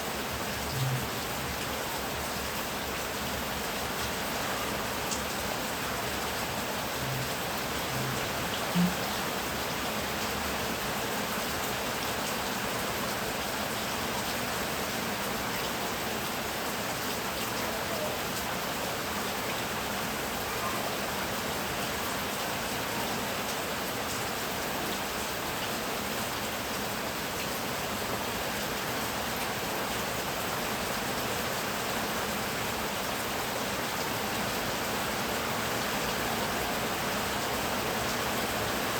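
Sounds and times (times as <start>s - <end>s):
heavy rain: 0.0s - 38.9s
short low blips: 0.7s - 1.1s.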